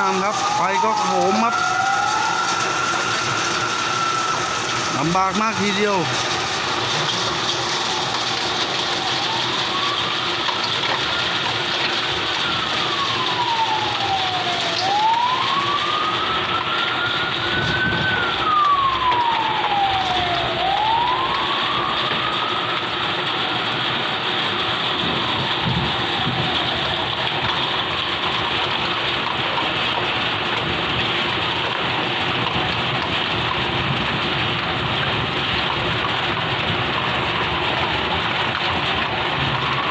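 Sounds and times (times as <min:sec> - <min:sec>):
heavy rain hiss: 0:00.0 - 0:16.4
siren wailing: 0:00.0 - 0:39.9.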